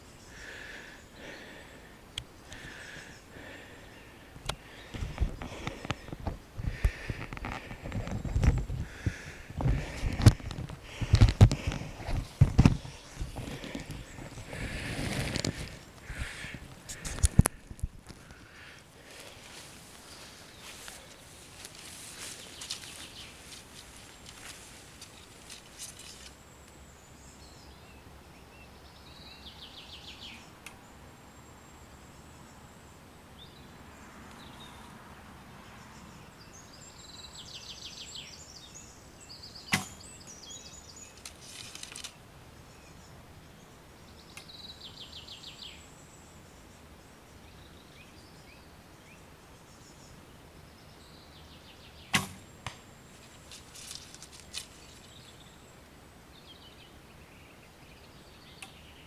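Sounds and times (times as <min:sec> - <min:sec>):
arrow striking target: 0:39.7 - 0:40.0, 0:52.1 - 0:52.8
bowstring snapping: 0:52.1 - 0:52.9.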